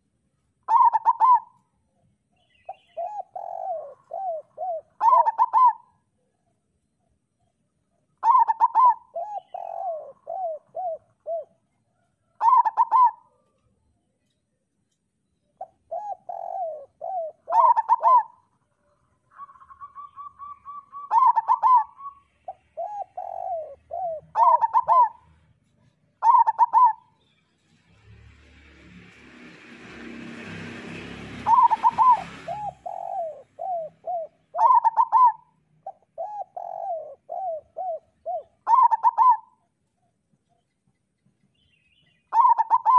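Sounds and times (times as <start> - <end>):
dove cooing: 0.7 - 1.6, 2.7 - 6.3, 8.2 - 13.6, 15.6 - 18.6, 19.3 - 27.1, 31.4 - 39.6, 42.3 - 42.9.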